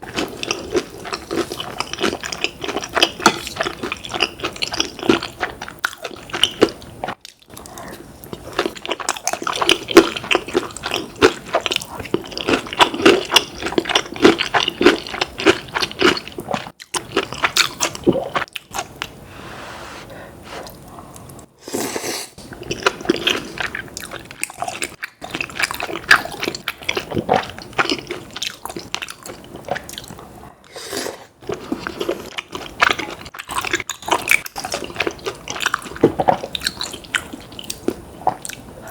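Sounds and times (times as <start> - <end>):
biting and chewing food: 22.4 - 30.3, 31.4 - 38.9.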